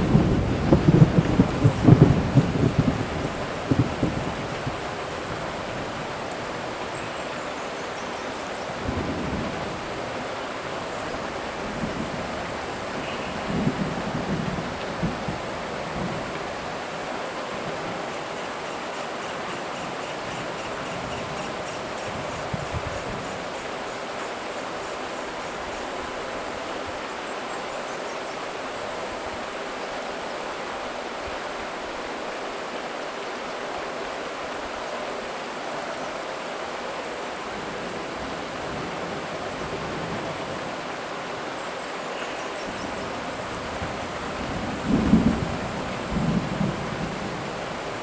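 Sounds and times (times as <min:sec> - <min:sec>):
low thunder rumble: 0:00.0 - 0:06.0, 0:42.7 - 0:48.0
rain falling on foliage: 0:00.0 - 0:48.0.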